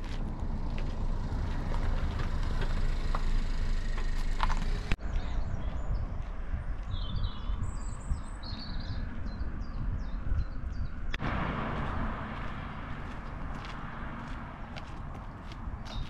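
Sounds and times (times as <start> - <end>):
low outdoor rumble: 0.0 - 6.7
small birds singing: 4.6 - 11.2, 15.3 - 16.0.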